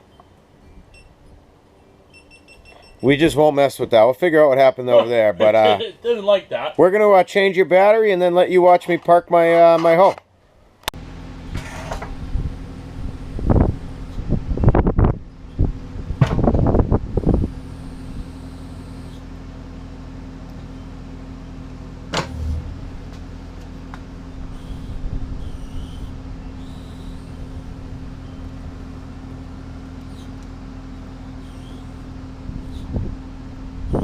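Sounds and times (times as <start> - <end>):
excavator diesel engine running: 11.0 - 14.6, 15.2 - 34.0.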